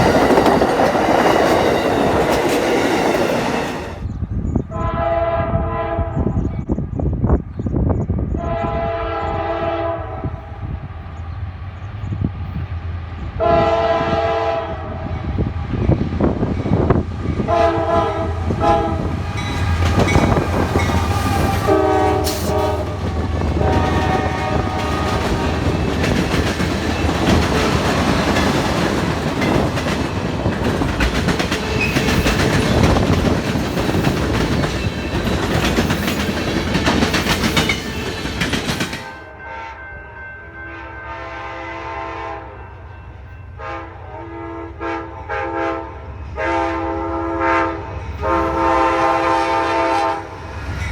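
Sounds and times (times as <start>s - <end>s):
train wheels clicking over rails: 0.0s - 4.1s, 18.5s - 39.2s
train rumble: 0.0s - 40.1s, 42.5s - 50.9s
train horn blasts: 4.7s - 6.5s, 8.4s - 10.8s, 13.4s - 15.4s, 17.4s - 26.2s, 39.2s - 50.6s.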